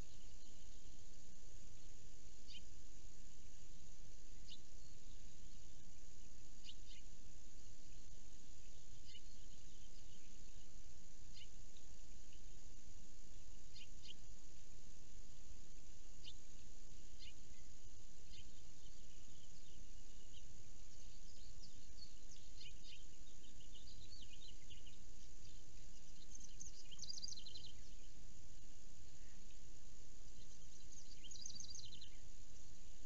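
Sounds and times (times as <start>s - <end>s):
steady background hiss: 0.0s - 33.0s
bird trill: 17.1s - 28.2s.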